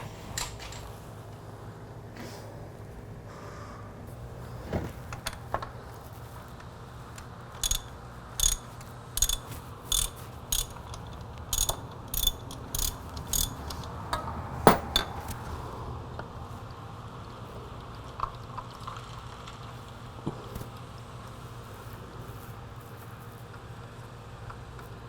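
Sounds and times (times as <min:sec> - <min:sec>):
steady low hum: 0:00.0 - 0:16.7
ratchet wrench clicking: 0:07.6 - 0:15.4
knocks: 0:14.6 - 0:15.3.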